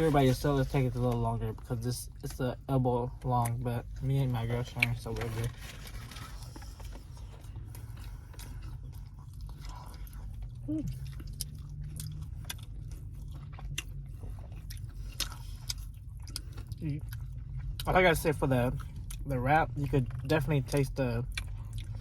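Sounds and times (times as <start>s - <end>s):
steady low hum: 0.0s - 22.0s
wet chewing mouth clicks: 7.6s - 17.9s.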